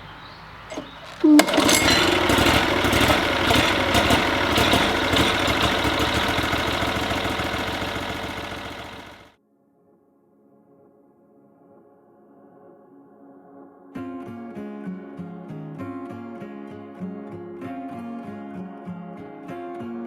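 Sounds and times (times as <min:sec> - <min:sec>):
gasoline engine running: 0:00.7 - 0:09.3
recoil cord pull: 0:00.7 - 0:09.3.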